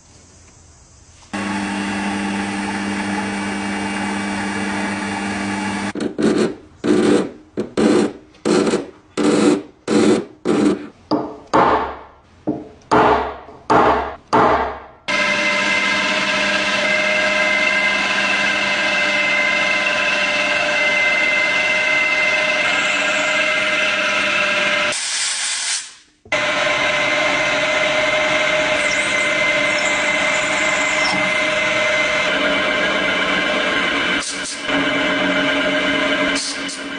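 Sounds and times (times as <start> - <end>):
small electric motor whining: 1.4 - 6.0, 15.9 - 24.9, 26.4 - 36.9.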